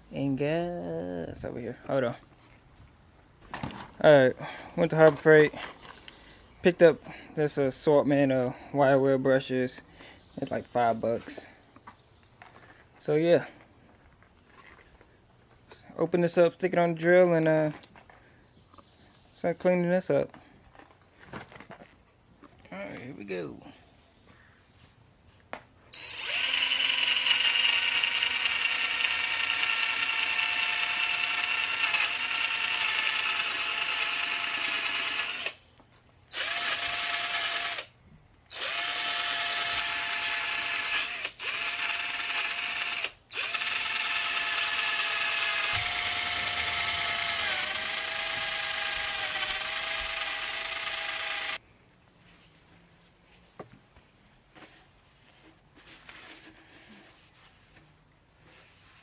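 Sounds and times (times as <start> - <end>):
electric drill motor whine: 25.9 - 35.6, 36.3 - 37.9, 38.5 - 51.6.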